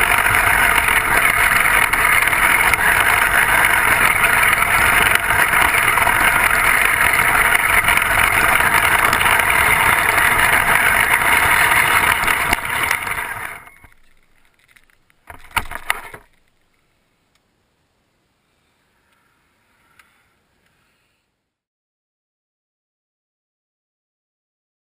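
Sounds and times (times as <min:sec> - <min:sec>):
remote control vehicle whirring: 0:00.0 - 0:16.3
clattering with sharp clicks: 0:00.0 - 0:16.8.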